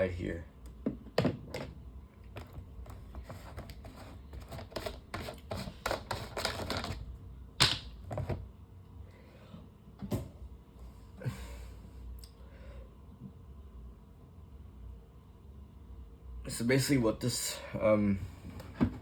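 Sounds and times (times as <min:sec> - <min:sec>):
plastic parts clicking and knocking: 0:04.4 - 0:07.0.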